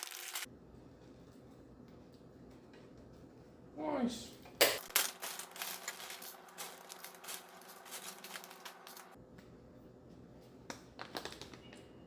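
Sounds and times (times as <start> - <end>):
packaging clicking and rustling: 4.8 - 9.2.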